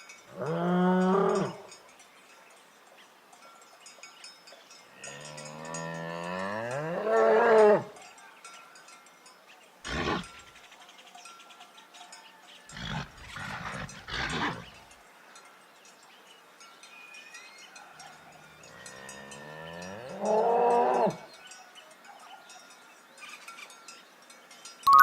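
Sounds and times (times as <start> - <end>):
bull mooing: 12.8 - 14.7.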